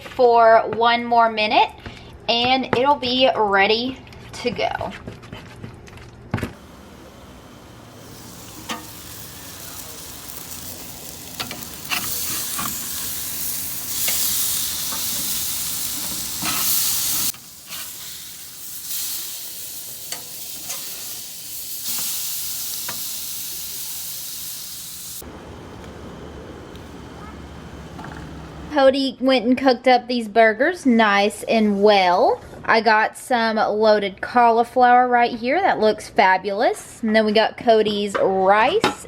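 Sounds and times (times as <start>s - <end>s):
food sizzling: 6.6s - 25.7s.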